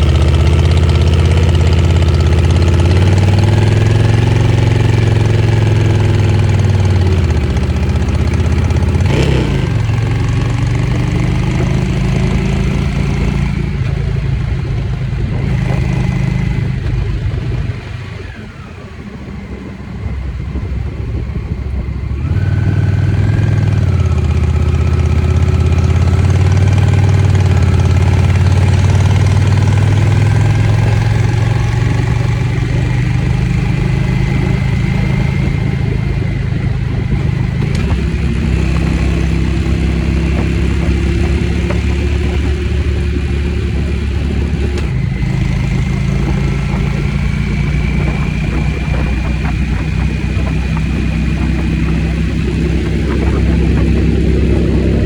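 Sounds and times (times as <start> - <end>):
motorcycle engine running: 0.0 - 55.0
motorcycle gear changes: 29.4 - 55.0.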